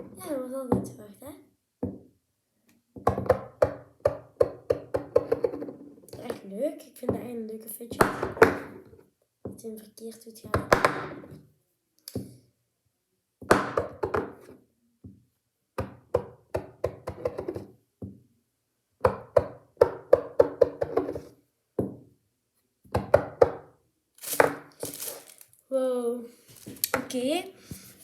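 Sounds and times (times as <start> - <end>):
plastic toy clattering on surface: 24.2 - 25.6.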